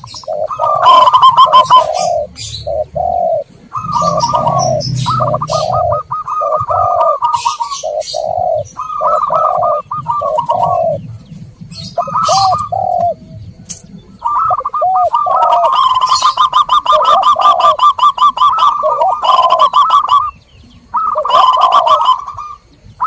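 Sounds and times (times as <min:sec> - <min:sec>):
doves cooing: 0:00.0 - 0:23.0
high chirps: 0:00.0 - 0:23.0.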